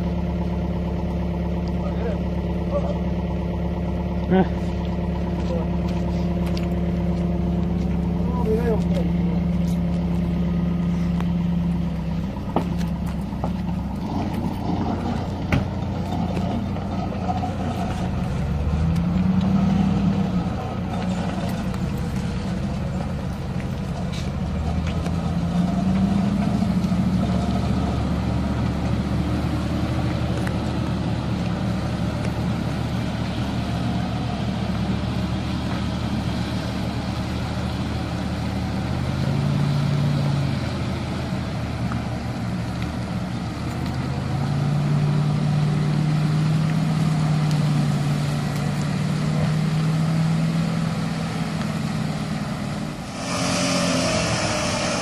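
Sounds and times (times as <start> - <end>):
engine running and revving: 0.0 - 55.0
hissing noise: 53.0 - 55.0.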